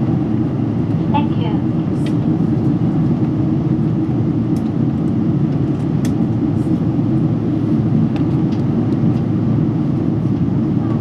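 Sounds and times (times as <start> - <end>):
airliner cabin engine noise: 0.0 - 11.0.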